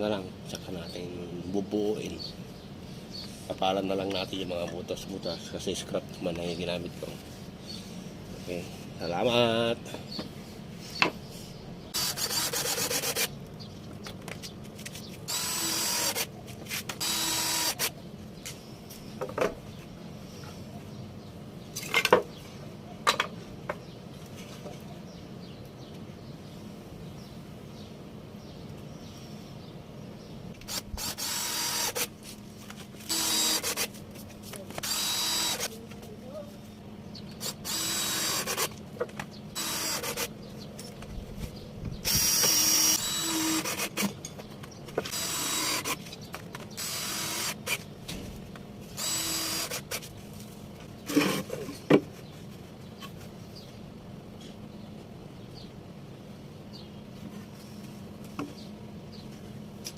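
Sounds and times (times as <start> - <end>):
power drill whirring: 12.0 - 13.3, 15.3 - 16.3, 17.0 - 17.9, 30.6 - 32.1, 33.0 - 33.9, 34.8 - 35.7, 37.4 - 38.7, 39.6 - 40.3, 42.0 - 44.1, 45.0 - 46.0, 46.8 - 47.8, 49.0 - 50.0.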